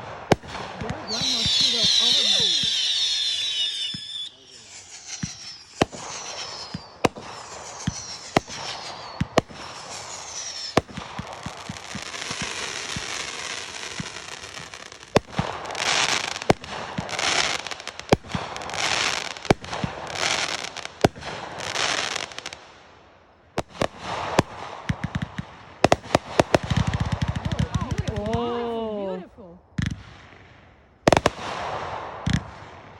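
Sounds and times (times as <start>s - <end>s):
crackling hiss: 0.0s - 32.9s
fireworks bangs: 0.0s - 32.9s
falling firework whistles: 0.3s - 23.0s, 29.8s - 32.9s
firecracker pops: 3.8s - 4.2s, 5.0s - 9.7s, 10.7s - 13.2s, 23.6s - 28.4s, 29.8s - 32.9s.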